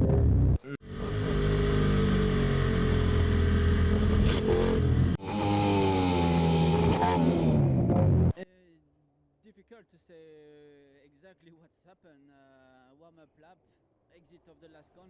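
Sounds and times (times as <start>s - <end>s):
racing motorcycle engine running: 0.0s - 8.3s.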